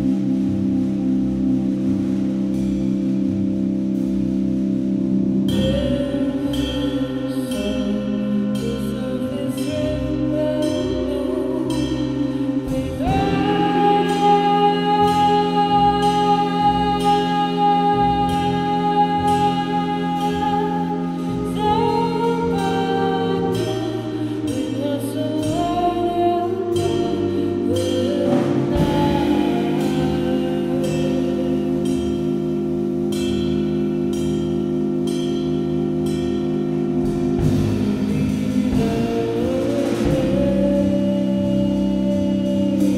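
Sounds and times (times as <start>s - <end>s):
band playing sustained chords: 0.0s - 42.9s
person singing: 5.5s - 32.6s, 37.5s - 42.9s.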